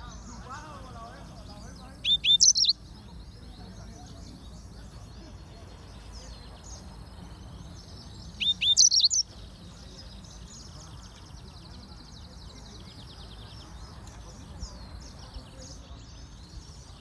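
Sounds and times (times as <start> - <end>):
canary singing: 0.0 - 5.0, 6.1 - 10.8
faint bird chirping: 0.0 - 17.0.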